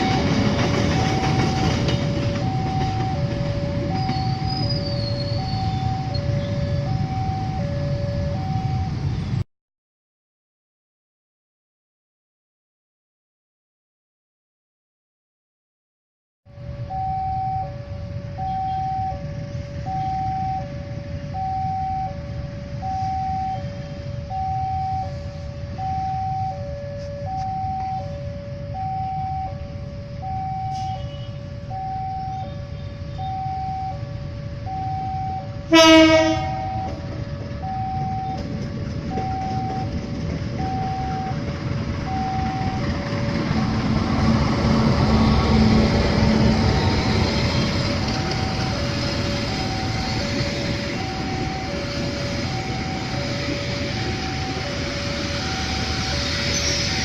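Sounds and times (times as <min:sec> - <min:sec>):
two-tone level crossing alarm: 0:00.0 - 0:09.1, 0:16.6 - 0:57.0
low rumble of train: 0:00.0 - 0:09.4, 0:16.5 - 0:57.0
train horn blast: 0:30.7 - 0:31.5, 0:35.7 - 0:37.0.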